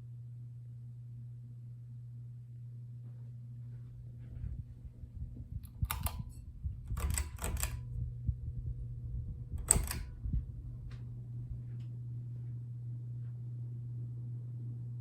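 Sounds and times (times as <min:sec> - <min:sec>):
ceiling fan humming: 0:00.0 - 0:15.0
sharp clicks and rattles: 0:05.6 - 0:07.9, 0:09.6 - 0:10.2.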